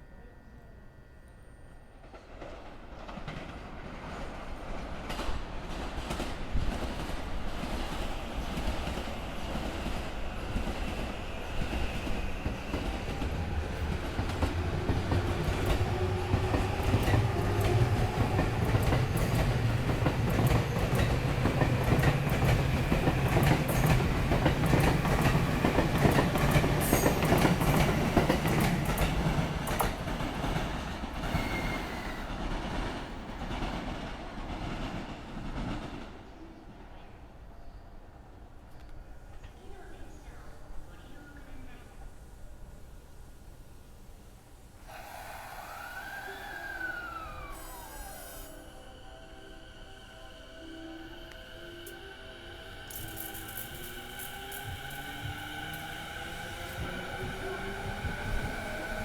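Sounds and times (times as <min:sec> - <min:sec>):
faint train whine: 0:00.0 - 0:59.0
train rumbling: 0:01.8 - 0:59.0
rail joint clacks: 0:11.7 - 0:36.2.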